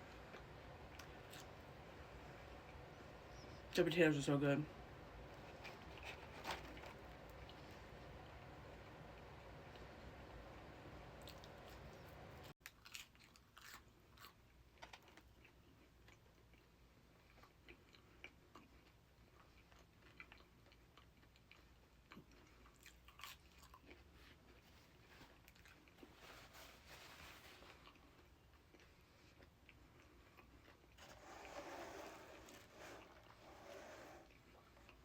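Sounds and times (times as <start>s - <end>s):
person chewing: 12.6s - 26.3s, 27.5s - 31.2s.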